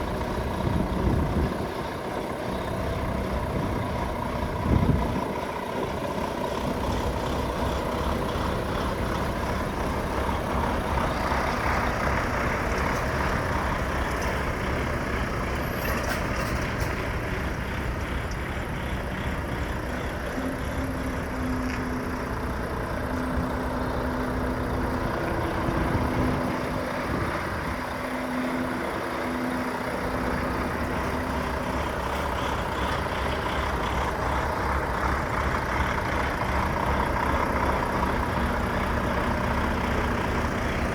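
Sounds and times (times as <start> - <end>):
diesel truck idling: 0.0 - 40.9.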